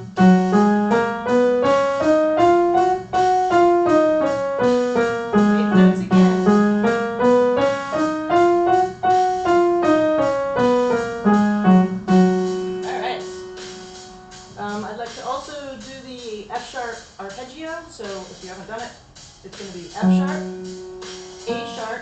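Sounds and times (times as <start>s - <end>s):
piano playing a scale: 0.0s - 14.9s, 20.0s - 22.0s.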